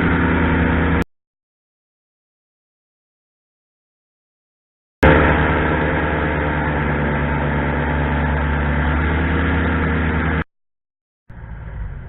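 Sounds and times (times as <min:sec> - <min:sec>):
airboat engine and propeller hum: 0:00.0 - 0:01.0, 0:05.0 - 0:10.4, 0:11.3 - 0:12.0.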